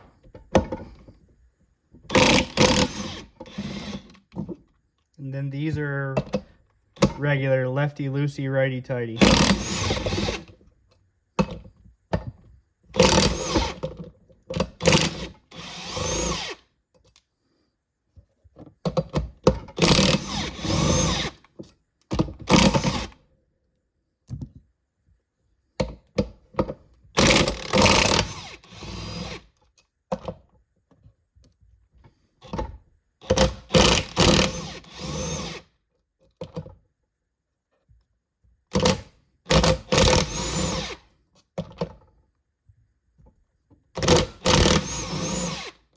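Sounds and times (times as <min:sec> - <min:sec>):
impact wrench bursts: 0:19.8 - 0:21.4, 0:27.2 - 0:29.4, 0:33.3 - 0:35.7, 0:38.8 - 0:41.0, 0:44.0 - 0:45.8.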